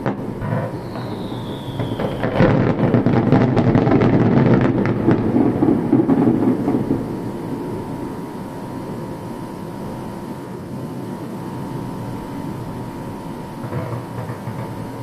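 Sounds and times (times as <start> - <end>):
firework bangs and crackles: 0.0 - 9.2, 12.8 - 15.0
firework whistle falling: 0.0 - 9.3.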